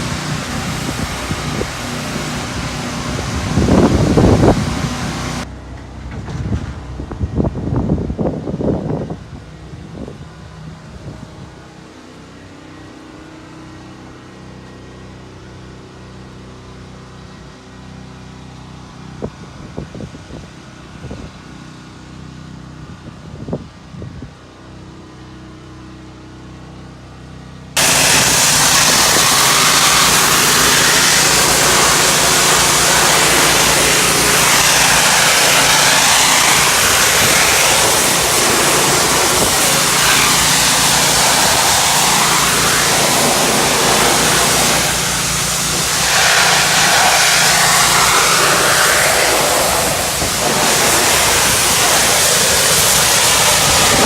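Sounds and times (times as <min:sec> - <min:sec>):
high-pressure water spray: 0:00.0 - 0:05.5, 0:27.8 - 0:54.0
pressure washer engine running: 0:00.0 - 0:05.5, 0:27.7 - 0:54.0.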